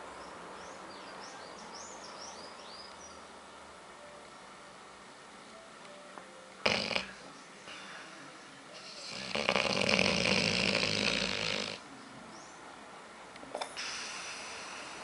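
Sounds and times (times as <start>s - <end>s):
dog snoring loudly: 6.6s - 7.2s, 8.8s - 11.8s.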